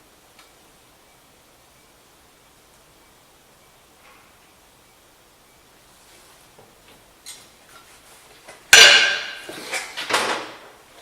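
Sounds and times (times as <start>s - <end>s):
loud metallic clank: 8.7s - 9.6s.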